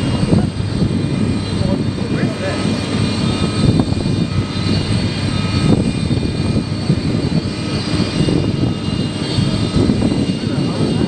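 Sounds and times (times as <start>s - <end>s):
gas turbines whining: 0.0s - 11.0s.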